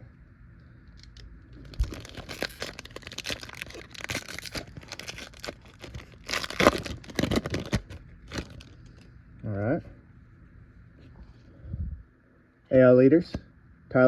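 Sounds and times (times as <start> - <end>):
plastic wrapper tearing and crinkling: 1.5 - 9.0.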